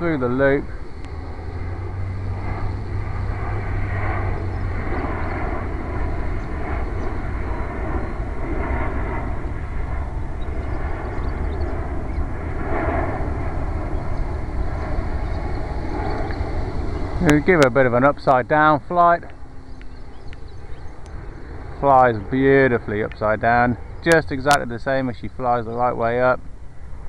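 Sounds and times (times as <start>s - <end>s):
model airplane motor whine: 0.0s - 17.7s
steady low rumble: 0.0s - 27.0s.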